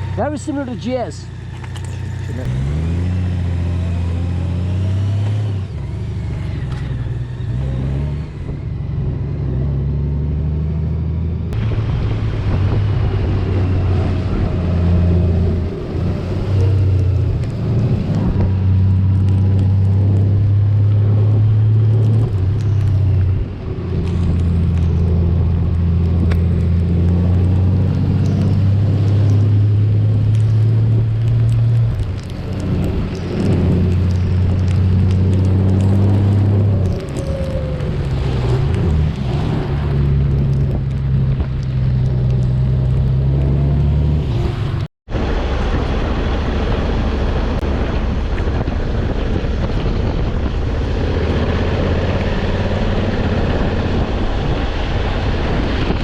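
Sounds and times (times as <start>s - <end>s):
motorcycle engine running: 0.0s - 4.5s
road and wind noise: 0.0s - 56.0s.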